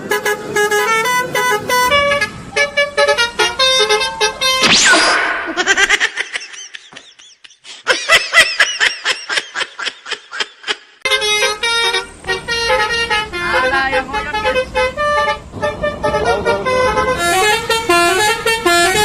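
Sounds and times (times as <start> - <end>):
multi-tone bus horn tune: 0.0 - 4.7, 11.0 - 19.0
swooping sound effect: 4.4 - 5.9.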